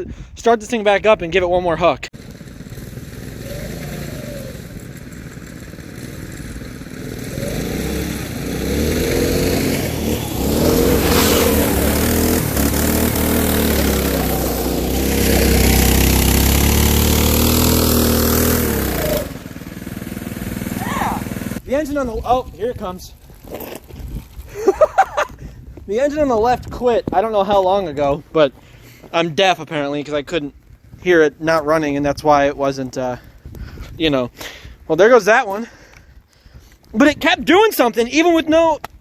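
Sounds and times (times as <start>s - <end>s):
go-kart engines revving: 2.1s - 21.6s.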